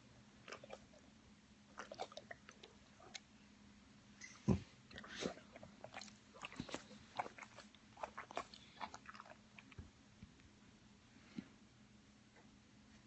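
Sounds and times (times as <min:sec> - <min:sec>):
dog chewing crunching: 0:00.5 - 0:01.0, 0:01.7 - 0:03.2, 0:05.0 - 0:09.8.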